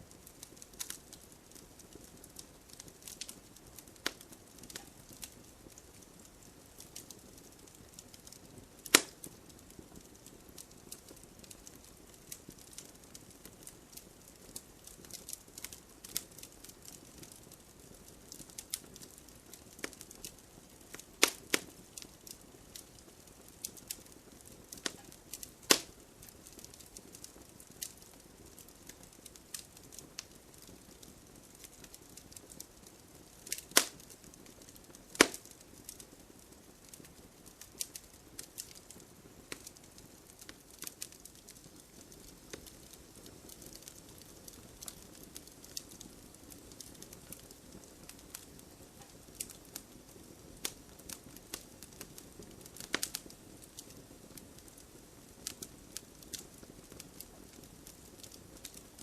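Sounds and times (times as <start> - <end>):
campfire crackling: 0.0 - 59.0
loud wood pops: 9.0 - 9.2, 25.7 - 25.9, 35.2 - 35.4.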